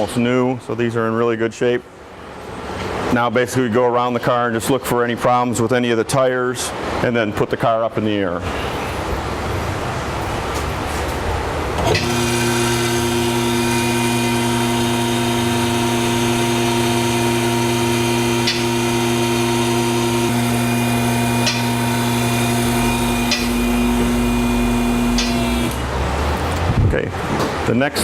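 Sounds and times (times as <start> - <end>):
lift motor and pump humming: 11.6 - 26.7
sharp clicks: 25.1 - 25.8.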